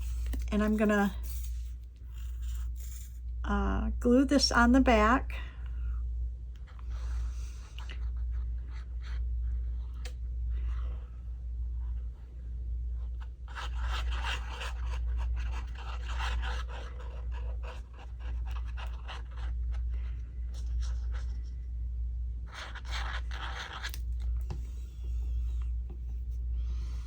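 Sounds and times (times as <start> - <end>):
steady low hum: 0.0 - 27.0
scraping and rubbing on paper: 6.6 - 11.2, 13.0 - 21.7, 22.5 - 26.4.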